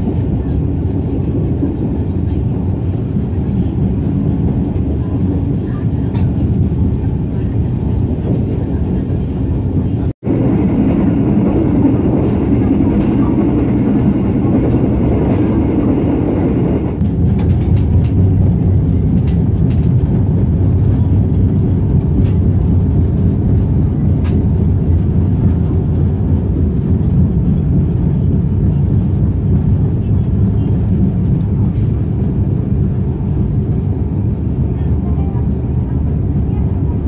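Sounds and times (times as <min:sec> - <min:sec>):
train carriage rumbling: 0:00.0 - 0:37.0.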